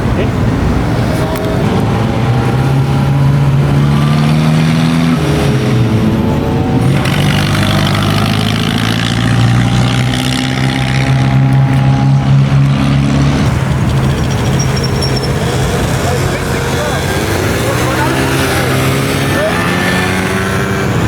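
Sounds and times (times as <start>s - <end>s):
car engine running: 0.0s - 21.0s
rushing noise: 0.0s - 21.0s.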